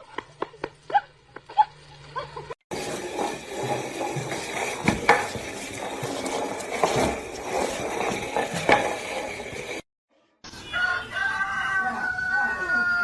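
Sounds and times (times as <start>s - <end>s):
scraping and clattering handling: 2.7s - 9.8s.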